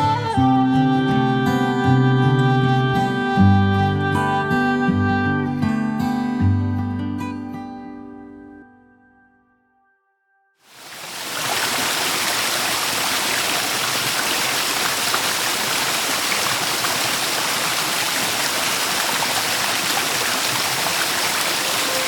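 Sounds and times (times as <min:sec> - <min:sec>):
creek water rushing over rocks: 0:10.7 - 0:22.0.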